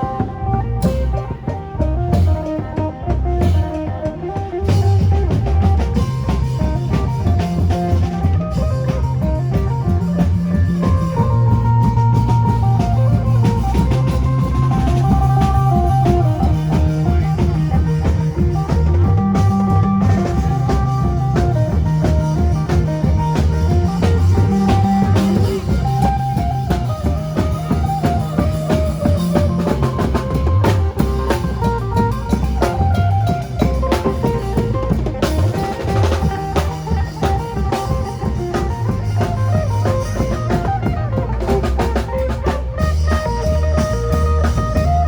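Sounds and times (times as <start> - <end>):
drum kit beat: 0.0 - 45.0.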